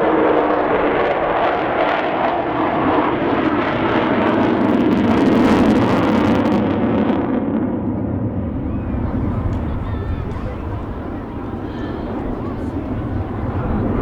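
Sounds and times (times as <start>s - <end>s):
jet bomber roaring past: 0.0s - 14.0s.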